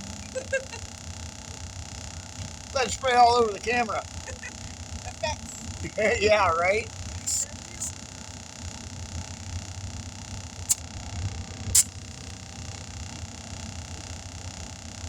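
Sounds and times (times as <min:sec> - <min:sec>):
low hum: 0:00.0 - 0:15.0
short sharp air hisses: 0:10.7 - 0:10.9, 0:11.7 - 0:12.0.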